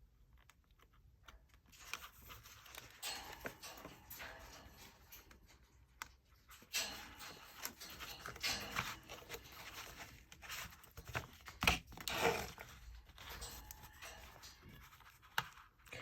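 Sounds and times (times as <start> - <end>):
paper rustling: 0.2 - 3.6, 7.6 - 16.0.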